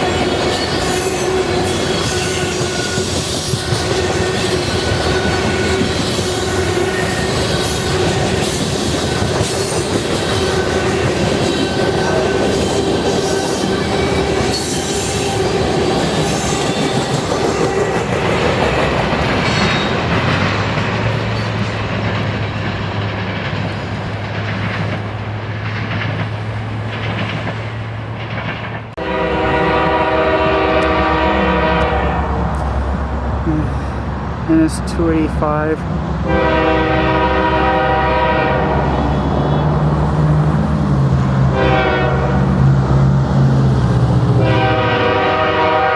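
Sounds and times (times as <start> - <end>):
train wheels clacking over rail joints: 0.0 - 29.0
locomotive air horn: 29.0 - 32.4, 36.2 - 39.7, 41.5 - 42.6, 44.4 - 45.9.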